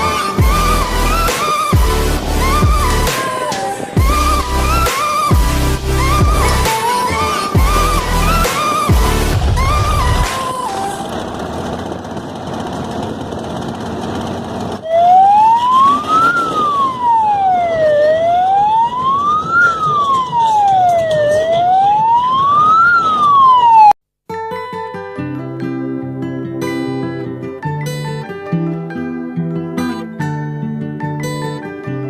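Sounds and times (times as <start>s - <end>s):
guitar music: 0.0s - 11.8s, 24.3s - 32.0s
electronic siren wailing: 0.0s - 12.4s, 14.8s - 24.0s
noisy background: 0.0s - 23.9s.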